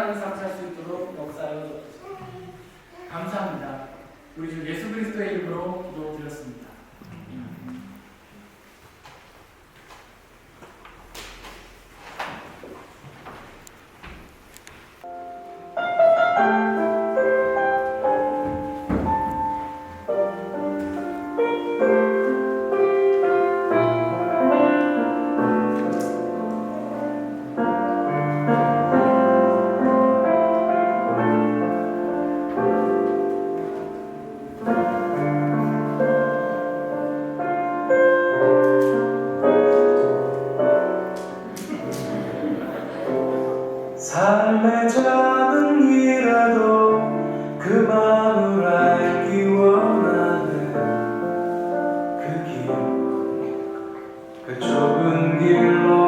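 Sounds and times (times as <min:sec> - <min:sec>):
piano playing chords and melody: 0:15.0 - 0:56.0.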